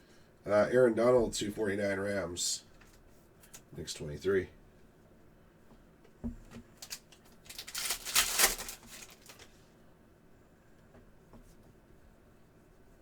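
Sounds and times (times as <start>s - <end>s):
cards sliding and rustling: 6.8s - 9.5s.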